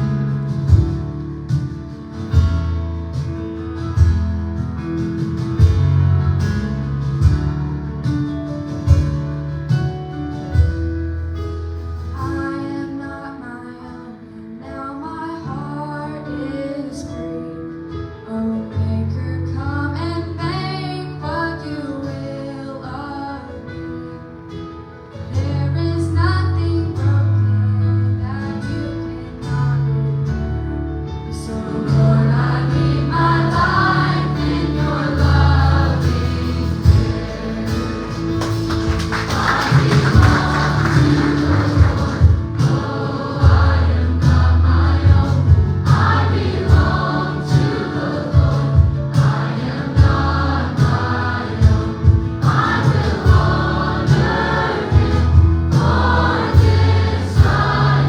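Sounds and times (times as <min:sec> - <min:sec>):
steady bass line: 0:00.0 - 0:12.2, 0:28.7 - 0:58.0
guitar: 0:00.0 - 0:58.0.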